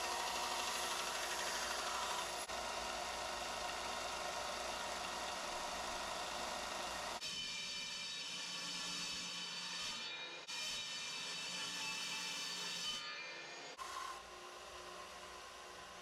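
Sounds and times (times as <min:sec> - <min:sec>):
belt sander grinding knife blade: 0:00.0 - 0:02.5.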